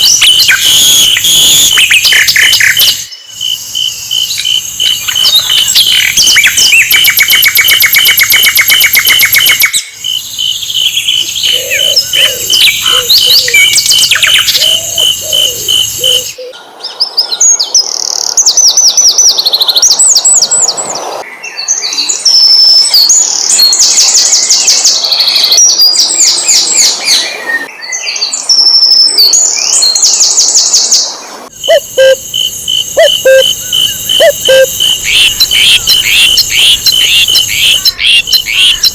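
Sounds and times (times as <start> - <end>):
flycatcher singing: 0.0 - 16.5, 31.5 - 38.9
high insect-like buzz: 31.5 - 38.9.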